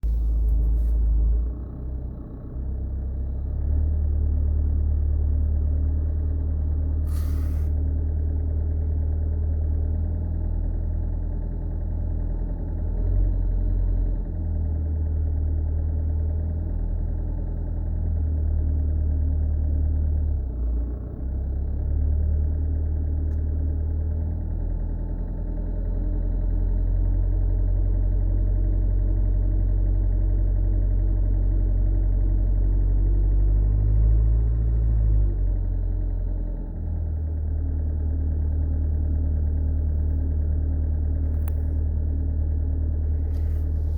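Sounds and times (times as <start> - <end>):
car engine low drone: 0.0 - 43.9
brief hiss: 7.0 - 7.7.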